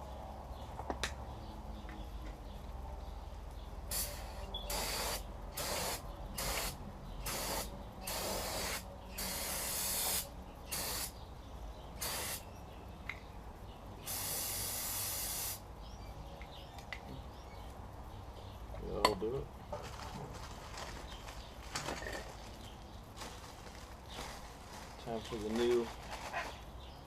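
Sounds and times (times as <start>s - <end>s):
aerosol spray hissing: 3.9s - 11.2s, 12.0s - 12.5s, 14.0s - 15.6s.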